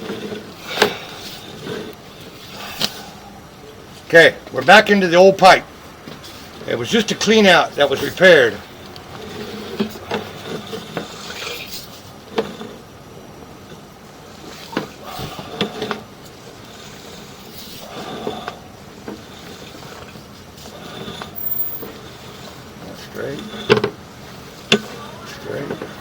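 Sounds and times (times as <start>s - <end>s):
camera head scraping pipe: 14.4s - 25.0s.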